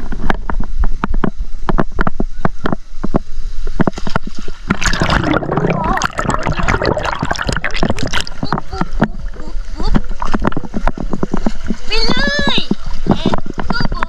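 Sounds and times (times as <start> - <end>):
wind rumble on microphone: 0.0 - 14.0
water splashing and sloshing: 3.0 - 14.0.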